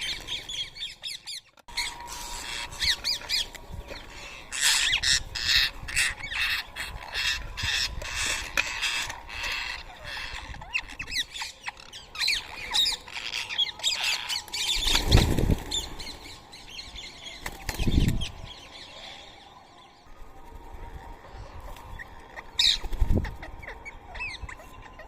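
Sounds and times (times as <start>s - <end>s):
parakeets squawking: 0.8s - 14.5s.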